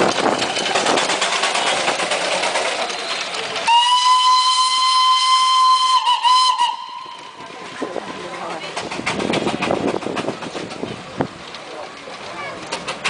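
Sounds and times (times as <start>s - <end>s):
toy train clatter: 0.0s - 5.2s, 8.3s - 13.0s
long train whistle: 3.7s - 7.4s.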